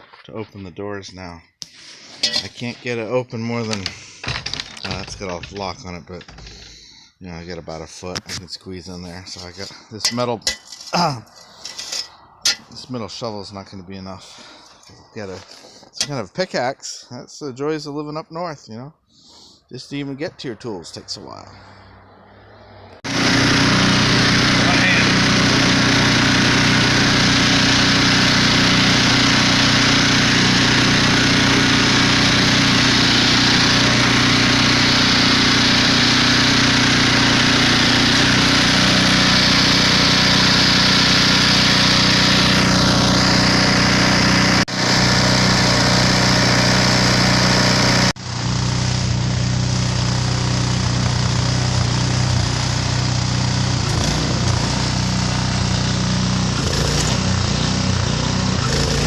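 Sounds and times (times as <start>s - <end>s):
snowblower engine humming: 23.1s - 59.0s.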